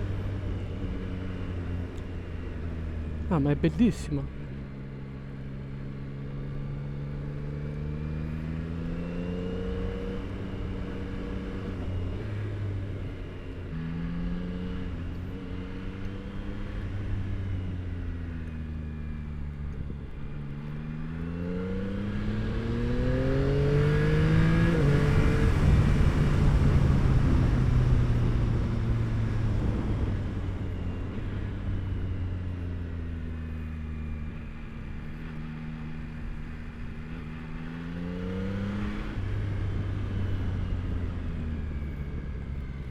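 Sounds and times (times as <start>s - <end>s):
motorcycle engine revving: 20.3s - 41.1s.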